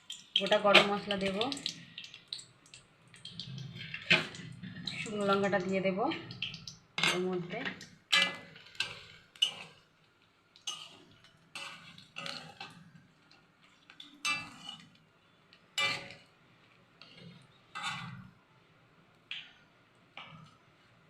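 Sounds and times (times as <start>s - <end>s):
metal spatula scraping a pan: 3.5s - 6.3s, 7.0s - 9.8s, 10.6s - 12.9s, 14.2s - 15.0s, 15.8s - 16.3s, 17.0s - 18.3s.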